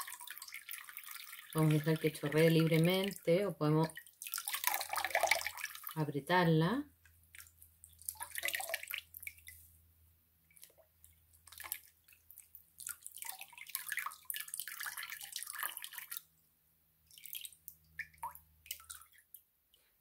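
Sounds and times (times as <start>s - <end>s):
water dripping into metal basin: 17.0s - 19.4s.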